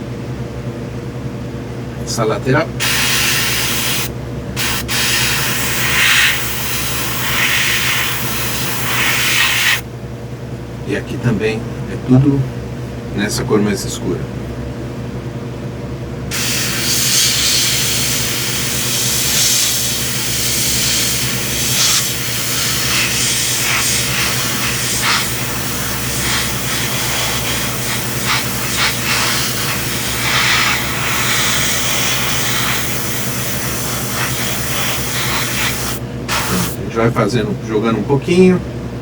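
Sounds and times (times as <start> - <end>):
airbrush spraying hiss: 2.8 - 9.8, 16.3 - 36.8.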